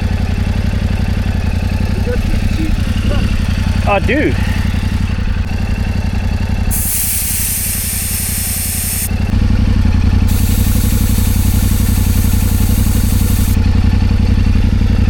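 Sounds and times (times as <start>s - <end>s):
motorcycle engine idling: 0.0s - 15.0s
air hissing from tyre valve: 6.7s - 9.3s, 10.2s - 13.6s.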